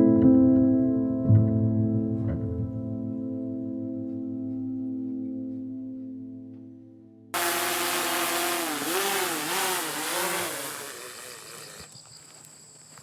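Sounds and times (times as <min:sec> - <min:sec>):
engine revving: 0:07.4 - 0:11.9.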